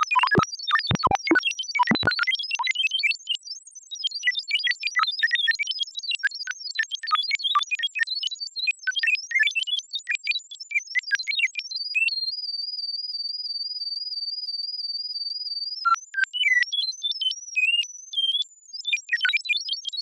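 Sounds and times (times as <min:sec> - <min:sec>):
robot beeps and whistles: 0:00.0 - 0:02.3.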